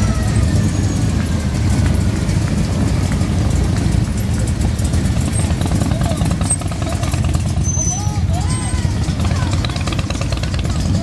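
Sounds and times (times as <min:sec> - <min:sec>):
car engines rumbling past: 0:00.0 - 0:11.0.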